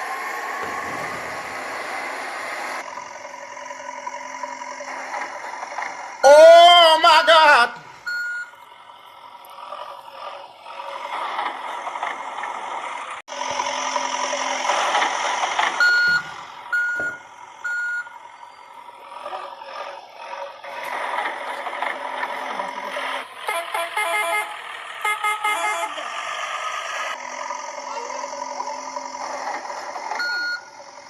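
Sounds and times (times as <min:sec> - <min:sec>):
reversing beeps: 0:08.0 - 0:08.6, 0:15.8 - 0:18.7, 0:30.2 - 0:30.8.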